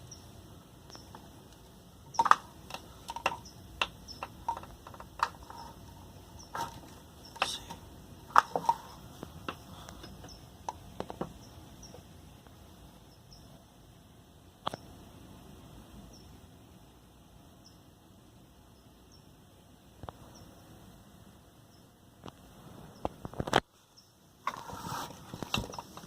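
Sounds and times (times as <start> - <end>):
faint steady background noise: 0.0 - 26.0
rain drips tapping: 0.9 - 5.7.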